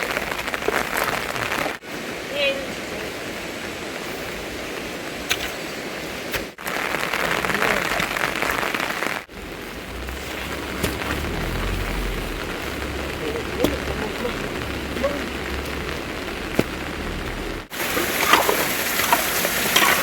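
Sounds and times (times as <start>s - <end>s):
steady rain: 0.0s - 20.0s
low rumble: 9.3s - 17.7s.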